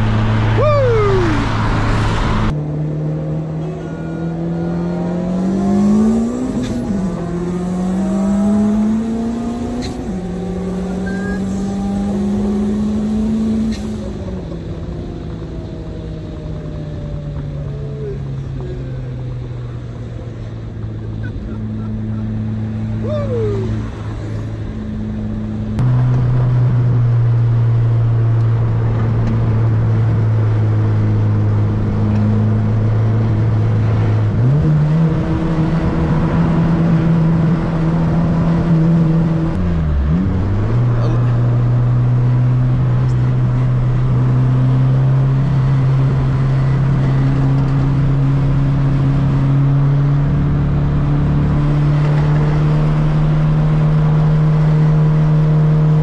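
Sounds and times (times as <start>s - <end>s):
car engine at highway speed: 0.0s - 56.0s
road noise: 0.0s - 56.0s.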